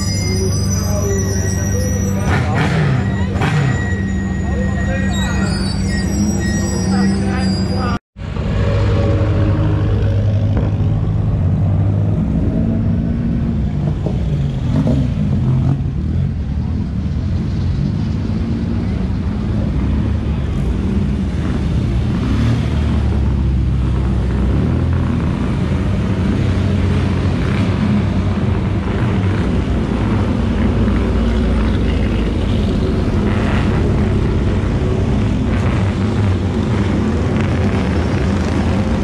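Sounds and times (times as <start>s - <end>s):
sports car engines passing: 8.2s - 39.0s.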